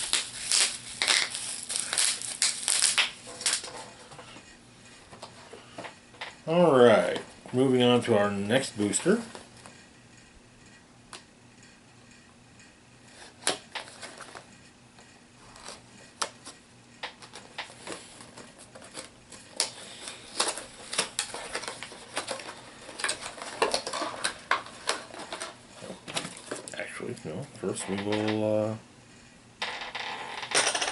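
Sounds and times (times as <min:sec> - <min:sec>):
plastic packaging rustling: 0:00.0 - 0:04.4, 0:17.2 - 0:26.8.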